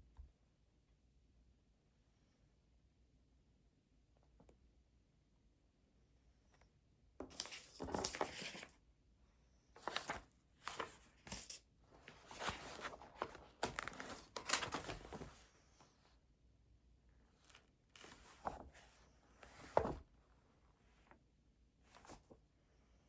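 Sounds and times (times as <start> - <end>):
paper rustling and crinkling: 7.3 - 8.7, 9.8 - 15.8, 17.4 - 20.1, 21.9 - 22.4.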